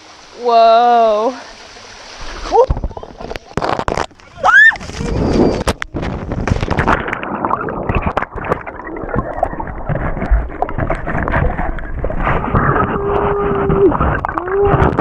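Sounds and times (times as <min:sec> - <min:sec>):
waterfall splashing: 0:00.0 - 0:09.9
low rumble on microphone: 0:04.8 - 0:15.0.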